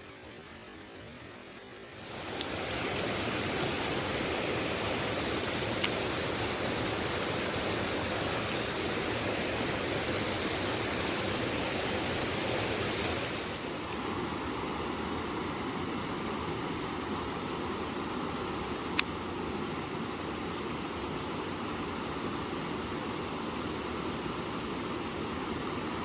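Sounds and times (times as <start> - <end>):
stream rushing over rocks: 0.0 - 26.0
sharp click: 18.9 - 19.2.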